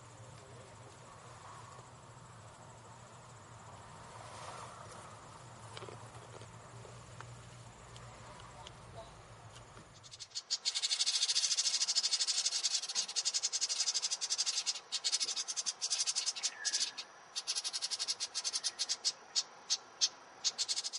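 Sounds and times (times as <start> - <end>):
small bird buzzy chatter: 9.9 - 20.9.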